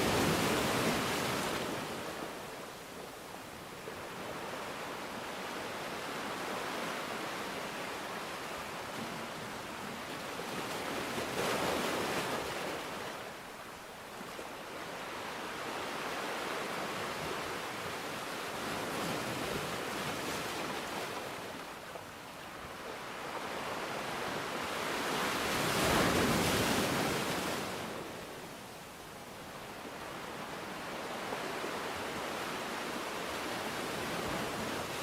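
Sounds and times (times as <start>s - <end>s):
rushing water: 0.0s - 2.8s.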